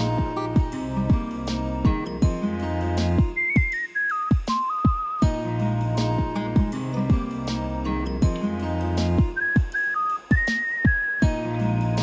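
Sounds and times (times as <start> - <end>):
soft instrumental chords: 0.0 - 12.0
kick drum beat: 0.2 - 2.4, 3.2 - 5.4, 6.2 - 7.5, 8.2 - 8.6, 9.2 - 11.4.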